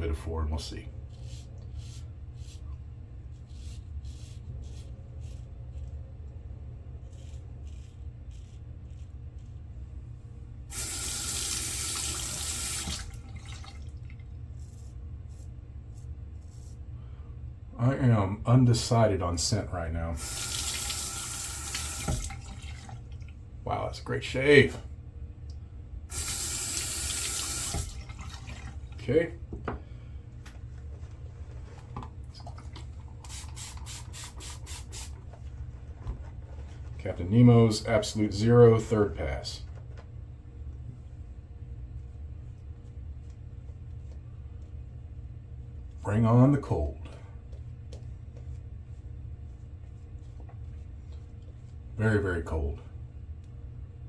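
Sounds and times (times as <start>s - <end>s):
steady low hum: 0.0s - 54.0s
shaving brush working lather: 1.0s - 6.0s, 7.0s - 9.8s, 10.7s - 13.2s, 14.5s - 16.8s, 20.2s - 22.5s, 26.1s - 28.2s, 33.2s - 35.1s
water running from sink tap: 10.7s - 14.1s, 20.2s - 23.3s, 26.1s - 29.0s.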